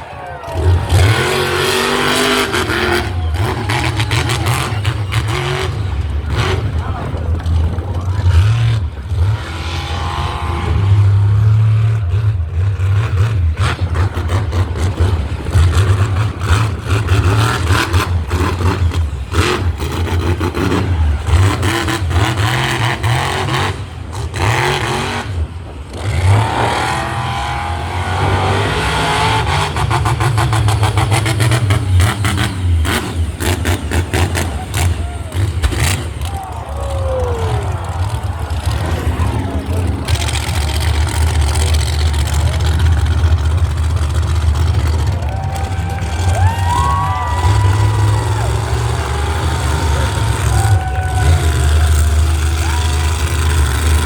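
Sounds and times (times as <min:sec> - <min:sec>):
monster truck engine revving: 0:00.0 - 0:54.0.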